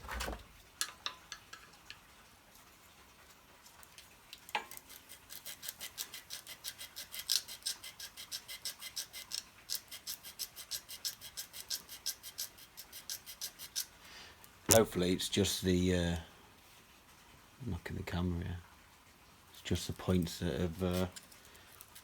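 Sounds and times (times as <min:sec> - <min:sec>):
sandpaper scratching metal points: 0:04.8 - 0:14.0, 0:20.4 - 0:21.2.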